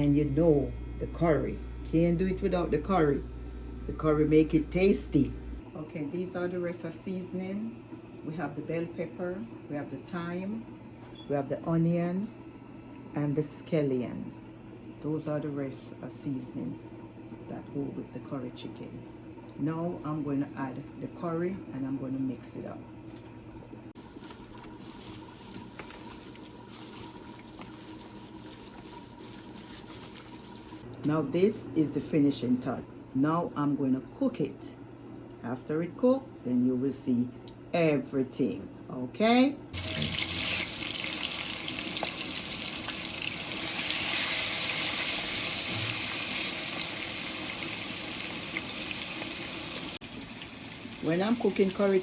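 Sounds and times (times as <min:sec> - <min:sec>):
steady background hum: 0:00.0 - 0:52.0
chicken sizzling in a hot pot: 0:39.8 - 0:52.0.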